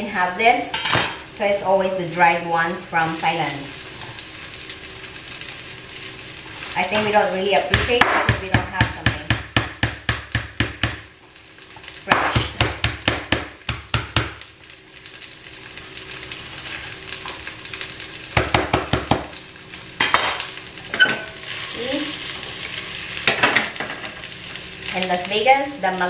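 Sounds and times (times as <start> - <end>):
garlic sizzling in a pan: 0.0 - 26.0
knife chopping on cutting board: 7.7 - 11.0.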